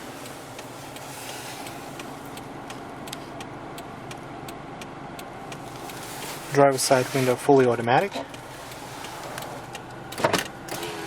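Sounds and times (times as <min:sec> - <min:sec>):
car engine idling: 0:00.0 - 0:11.0
hazard light flasher ticking: 0:00.2 - 0:06.0.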